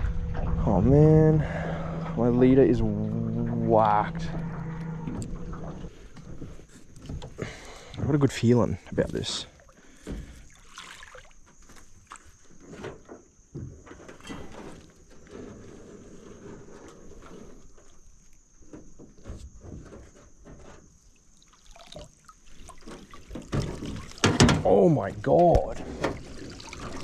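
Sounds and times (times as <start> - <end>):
water trickling and splashing: 2.8 - 13.1, 16.2 - 19.3, 20.6 - 27.0
small irregular knocks: 22.6 - 24.7.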